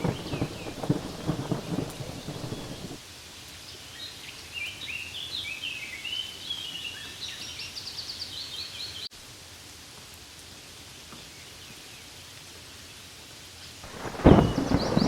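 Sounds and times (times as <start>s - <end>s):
songbird chirping and trilling: 0.0s - 3.0s, 3.9s - 9.1s, 13.9s - 15.0s
rain hiss: 0.0s - 15.0s.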